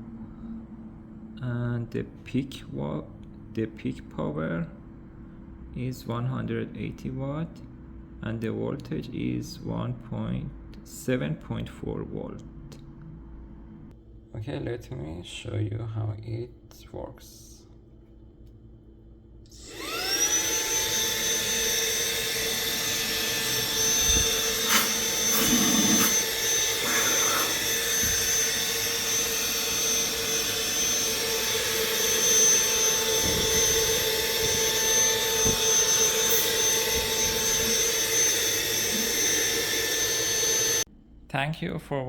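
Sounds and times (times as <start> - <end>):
handheld vacuum motor whine: 19.5 - 40.9.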